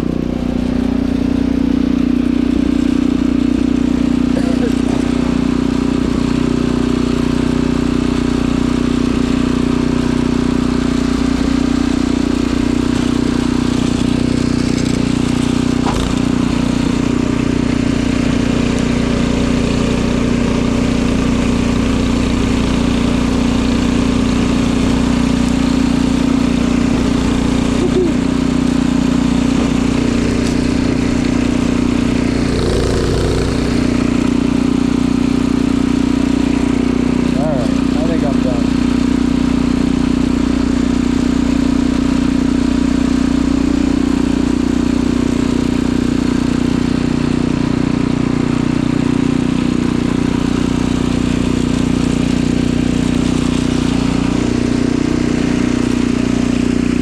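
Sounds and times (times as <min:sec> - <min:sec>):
snowblower engine running: 0:00.0 - 0:57.0.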